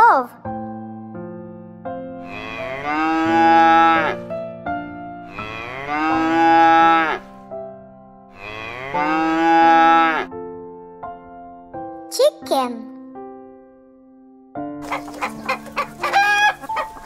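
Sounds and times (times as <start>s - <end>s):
soft music: 0.0s - 17.0s
cow mooing: 2.2s - 4.2s, 5.3s - 7.3s, 8.4s - 10.3s.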